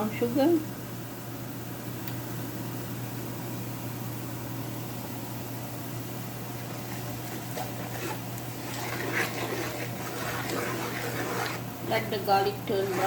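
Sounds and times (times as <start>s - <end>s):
oil crackling: 6.5s - 13.0s.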